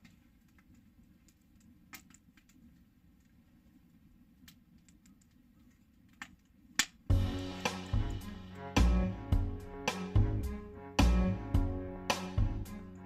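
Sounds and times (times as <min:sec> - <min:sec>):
background music with strings: 0:07.1 - 0:13.0
low steady rumble: 0:07.1 - 0:13.0.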